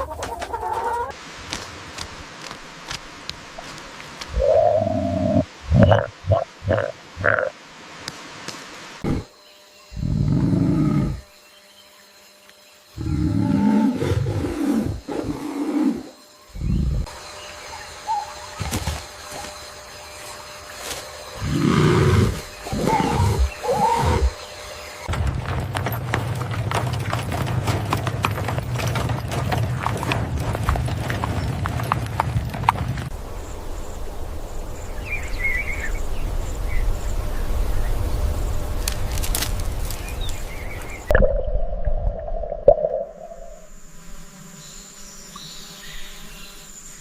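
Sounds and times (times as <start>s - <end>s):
large animal low calls: 4.3s - 7.5s, 21.4s - 24.4s.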